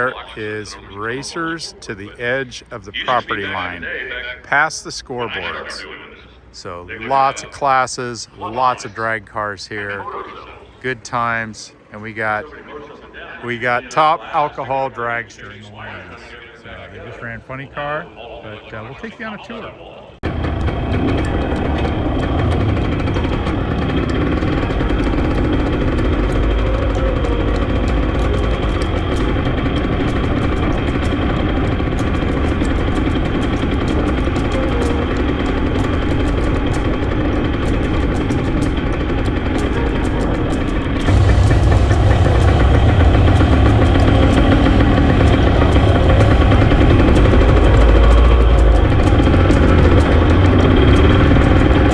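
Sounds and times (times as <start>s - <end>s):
drag racing engine idling: 20.2s - 51.9s.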